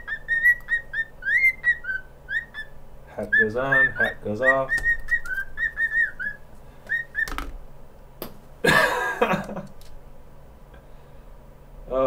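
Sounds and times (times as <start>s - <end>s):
cockatiel whistling: 0.0s - 7.4s
bird clicks: 4.7s - 6.0s.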